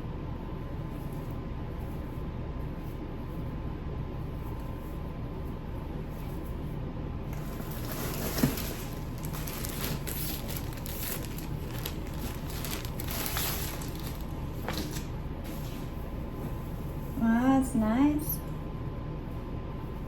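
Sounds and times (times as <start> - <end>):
steady low hum: 0.0 - 20.0
clothing packaging crinkling: 7.3 - 15.2.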